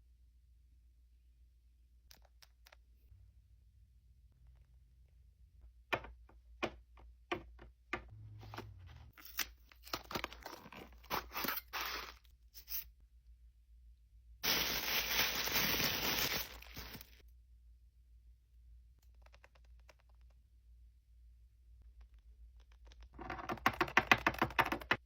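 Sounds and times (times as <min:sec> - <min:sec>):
packaging crinkling: 0:14.4 - 0:17.2
packaging tearing: 0:14.4 - 0:17.2.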